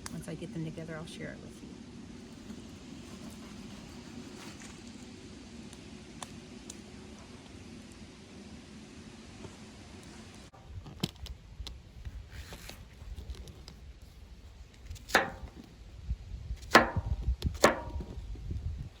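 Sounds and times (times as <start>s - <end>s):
wind rumble on microphone: 10.3s - 19.0s
knife chopping on cutting board: 15.1s - 15.5s, 16.7s - 18.0s.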